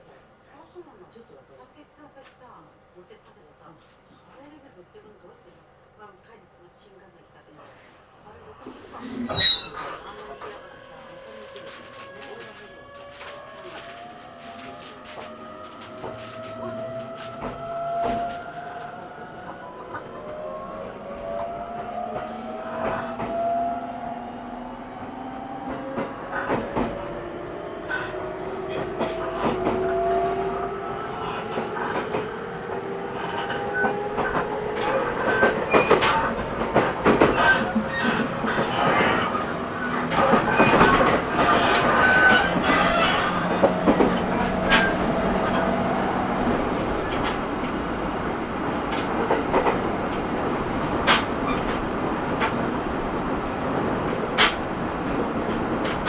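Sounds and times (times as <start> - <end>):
wheel squeals: 9.3 - 10.6
wheels clicking over rail joints: 11.5 - 18.5, 53.6 - 56.0.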